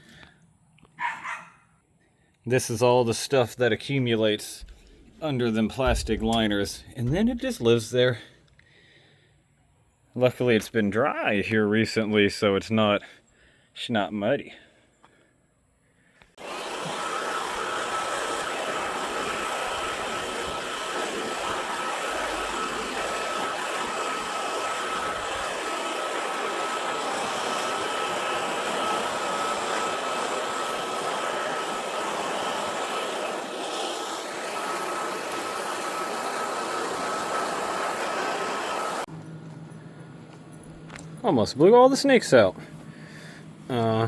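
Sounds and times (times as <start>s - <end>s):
leaf blower whining: 16.3s - 41.2s.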